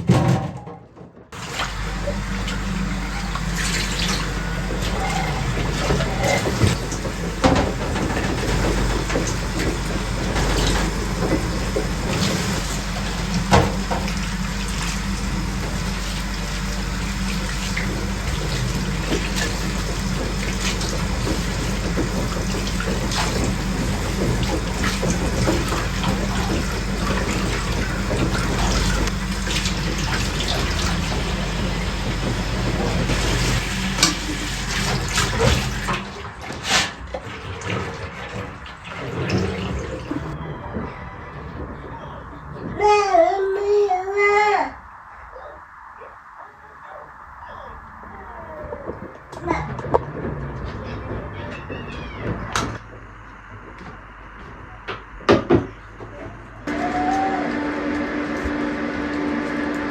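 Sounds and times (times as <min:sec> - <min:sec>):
running water rushing: 0:01.4 - 0:40.4.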